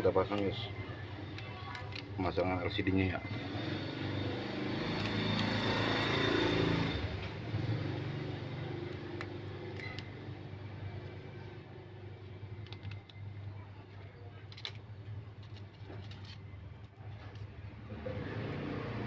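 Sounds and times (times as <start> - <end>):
passing vehicle engine: 3.2 - 11.8, 17.8 - 19.0.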